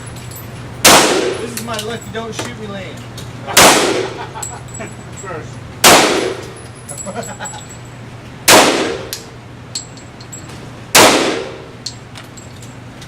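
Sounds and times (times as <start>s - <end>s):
gunshots reverberating indoors: 0.8s - 1.4s, 3.5s - 4.2s, 5.8s - 6.6s, 8.5s - 9.2s, 10.9s - 11.8s.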